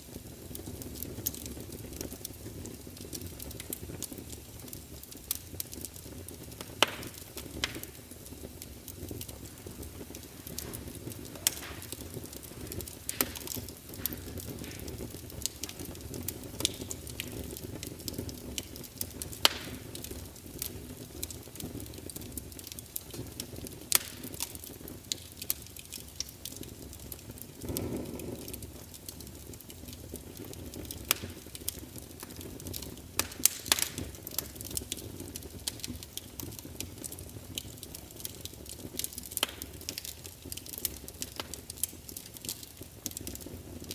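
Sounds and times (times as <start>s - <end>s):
low rush of flame: 0.0s - 42.1s
wood fire crackling and popping: 0.0s - 43.9s.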